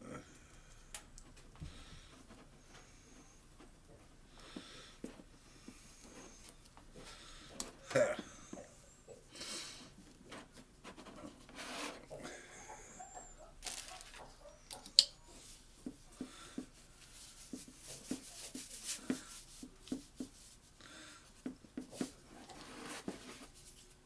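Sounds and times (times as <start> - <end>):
hands rustling and rubbing camera: 15.4 - 24.0.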